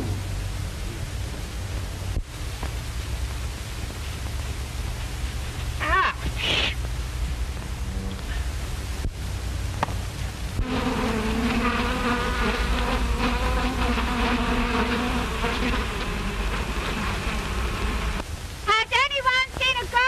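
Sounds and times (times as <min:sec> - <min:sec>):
old film soundtrack hiss: 0:00.0 - 0:20.0
bee buzzing: 0:10.6 - 0:18.2.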